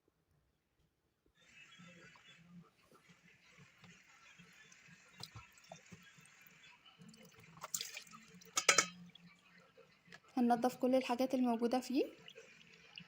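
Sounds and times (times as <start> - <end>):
water dripping into container: 4.6 - 10.3, 11.8 - 13.0.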